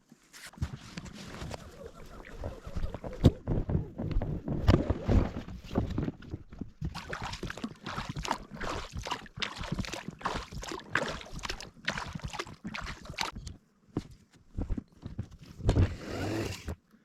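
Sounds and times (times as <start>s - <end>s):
water splashing and sloshing: 4.7s - 13.5s.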